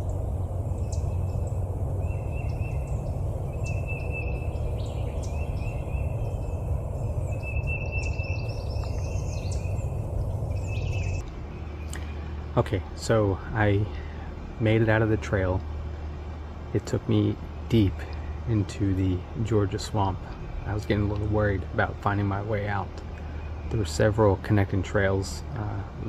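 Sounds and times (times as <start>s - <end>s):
high bird chirps: 0.0s - 12.4s
low rumble: 0.0s - 18.6s
birds trilling calls: 0.0s - 26.0s.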